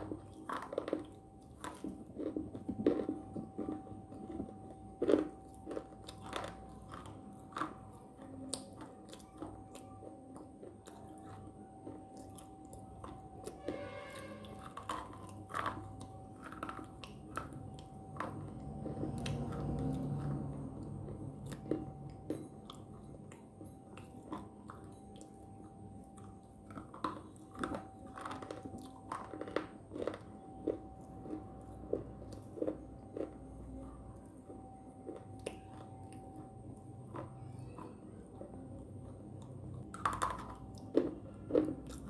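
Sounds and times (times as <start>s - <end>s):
crunchy chewing and snapping: 0.0s - 42.0s
faint steady tone: 30.2s - 41.8s.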